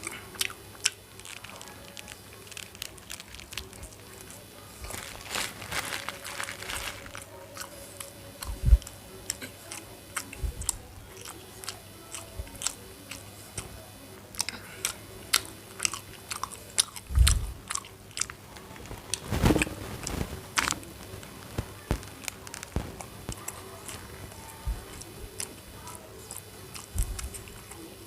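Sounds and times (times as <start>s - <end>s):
person chewing and biting food: 0.0s - 3.9s, 6.1s - 13.7s, 14.4s - 18.3s, 26.2s - 27.8s.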